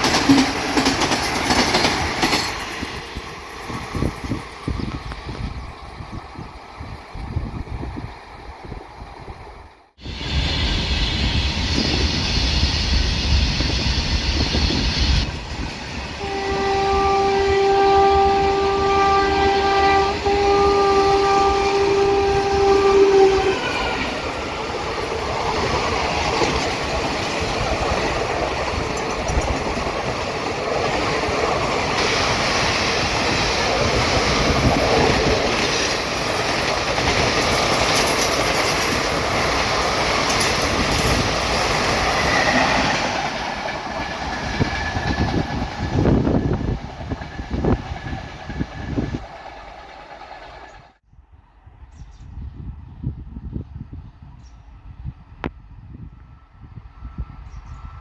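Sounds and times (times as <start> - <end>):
train passing: 0.0 - 58.0
locomotive horn: 16.2 - 24.2.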